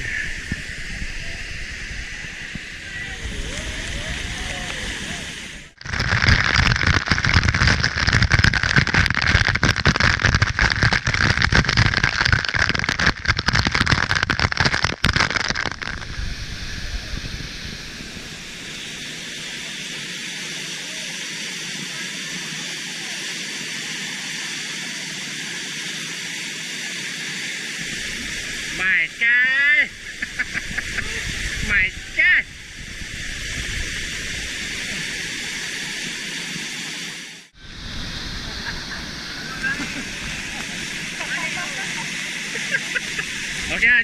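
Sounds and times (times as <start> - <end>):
water pouring onto microphone: 5.7 - 18.9.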